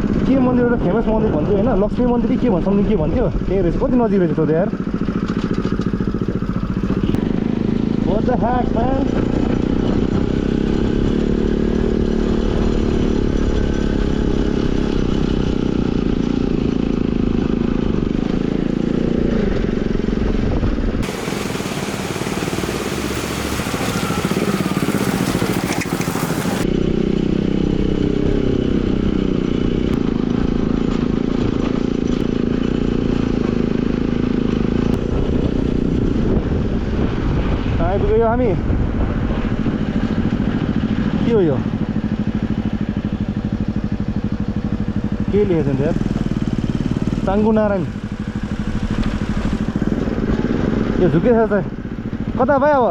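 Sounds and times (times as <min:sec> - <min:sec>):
motorcycle engine running: 0:00.0 - 0:52.9
wind and road noise: 0:00.0 - 0:52.9
hissing rush of noise: 0:21.0 - 0:26.6.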